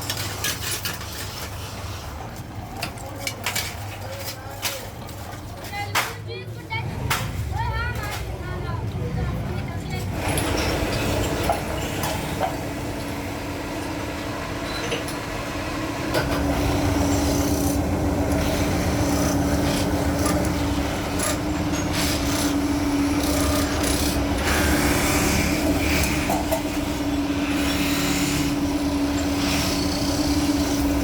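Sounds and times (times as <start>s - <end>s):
machine humming: 10.2s - 31.0s
tool rubbing and scraping: 16.2s - 31.0s.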